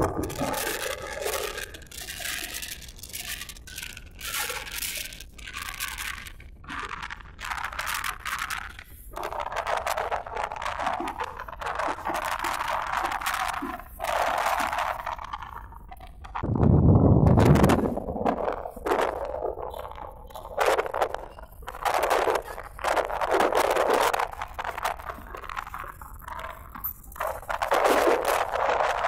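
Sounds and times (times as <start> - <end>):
crackling: 0.0 - 29.0
strong gusty wind: 16.4 - 19.0.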